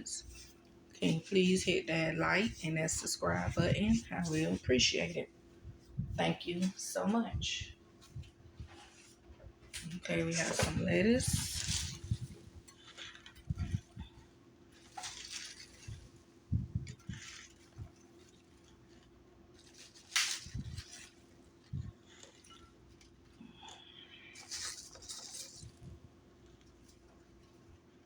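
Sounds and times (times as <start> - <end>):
faint steady hum: 0.0 - 28.0
kitchen rustles: 0.0 - 28.0.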